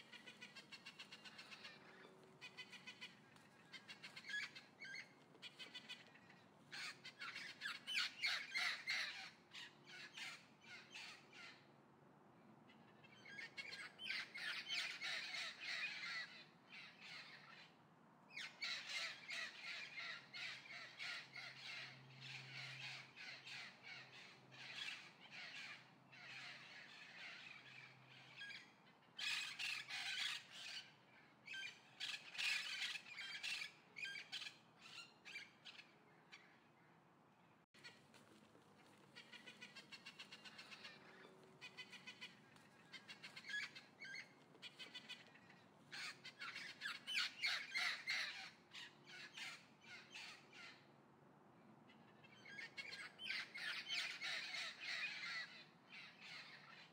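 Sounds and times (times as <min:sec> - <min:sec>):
harsh repeated bird calls: 0:00.0 - 0:11.7, 0:39.2 - 0:51.0, 0:51.9 - 0:56.9.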